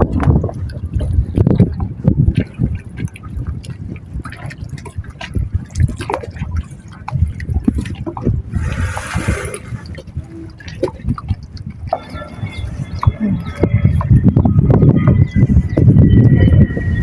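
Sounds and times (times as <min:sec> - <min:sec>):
seawater sloshing and splashing: 0:00.0 - 0:17.0
hissing splash: 0:08.5 - 0:10.0.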